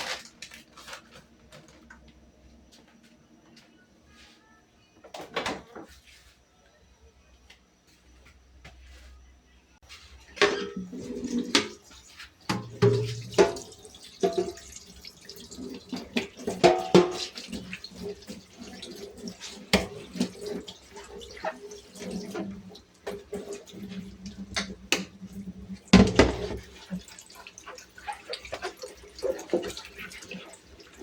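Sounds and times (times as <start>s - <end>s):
water splashing and dripping: 12.7s - 31.0s.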